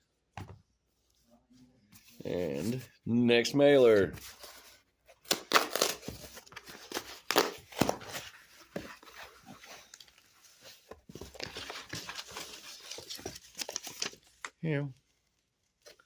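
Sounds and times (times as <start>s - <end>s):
packaging crackling and rustling: 9.0s - 16.0s.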